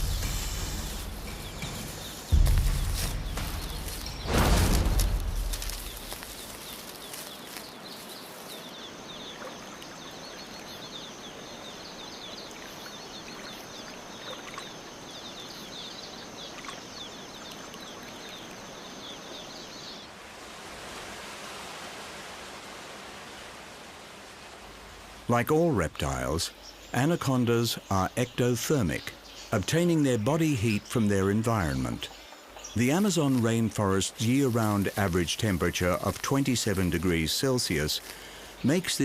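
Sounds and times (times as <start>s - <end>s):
steady high whine: 0.0s - 6.4s
background hiss: 0.0s - 39.0s.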